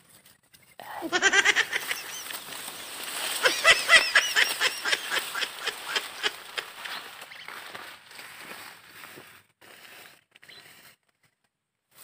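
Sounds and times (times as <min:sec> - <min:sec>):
bird calling harshly: 0:00.9 - 0:08.1.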